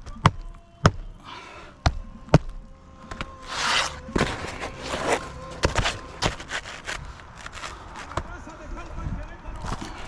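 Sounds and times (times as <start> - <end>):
shingles scraping: 2.3 - 8.8.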